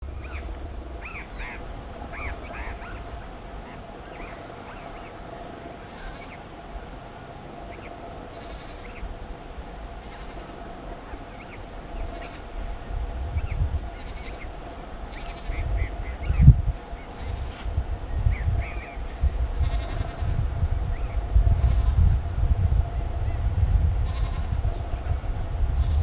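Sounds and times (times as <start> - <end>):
low steady rumble: 0.0 - 6.2, 7.7 - 26.0.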